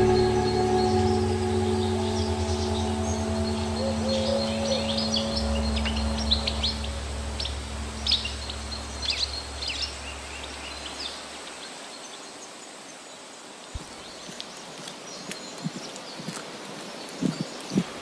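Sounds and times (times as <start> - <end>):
low hum: 0.0 - 11.7
birds chirping: 0.0 - 12.6.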